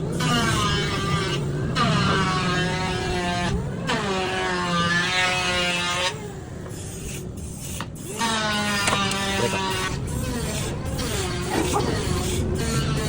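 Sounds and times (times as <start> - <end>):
motorcycle engine revving: 8.0 - 13.0.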